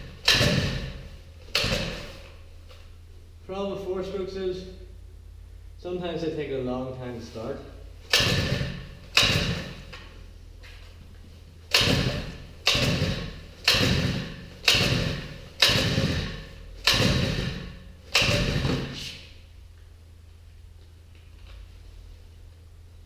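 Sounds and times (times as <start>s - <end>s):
engine pull-starter rasping: 0.0s - 2.3s, 8.0s - 9.9s, 11.7s - 19.1s.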